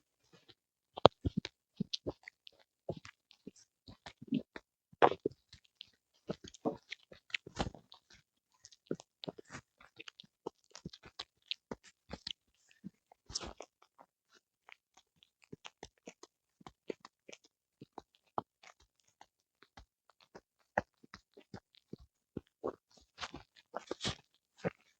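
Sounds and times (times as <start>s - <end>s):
dog chewing with wet crunches: 1.0s - 24.9s.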